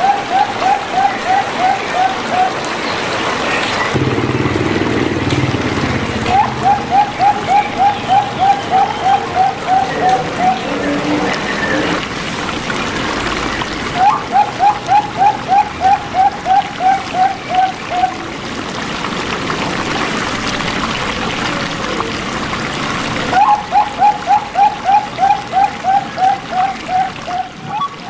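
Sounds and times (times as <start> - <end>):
dove cooing: 0.0 - 3.0, 5.6 - 12.0, 13.9 - 18.4, 23.3 - 28.0
running water: 0.0 - 28.0.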